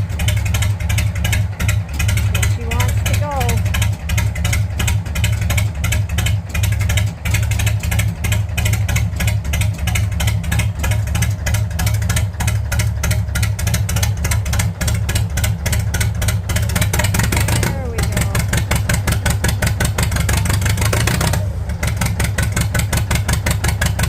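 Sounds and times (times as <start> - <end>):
diesel tractor engine idling: 0.0 - 24.0.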